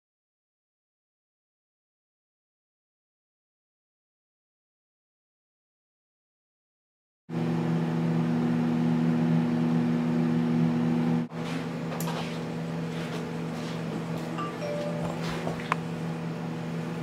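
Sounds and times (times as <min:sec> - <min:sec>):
microwave oven humming: 0:07.3 - 0:17.0.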